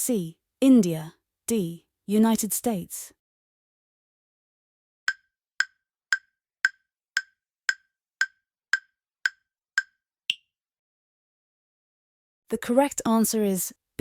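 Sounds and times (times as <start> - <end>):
woodblock-like timer ticks: 5.1 - 10.5.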